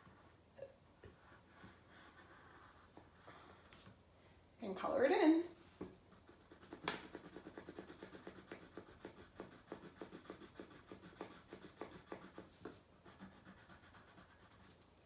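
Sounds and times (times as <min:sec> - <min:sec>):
colored pencil scribbling on paper: 0:06.1 - 0:14.8.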